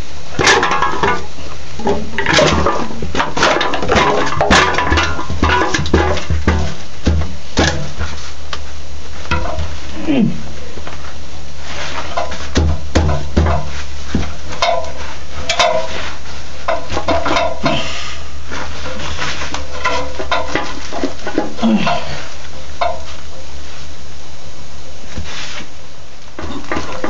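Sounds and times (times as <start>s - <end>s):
constant low rumble: 0.0s - 27.0s
knocks and scrapes: 0.4s - 8.4s, 9.2s - 9.9s, 11.6s - 23.3s, 26.4s - 27.0s.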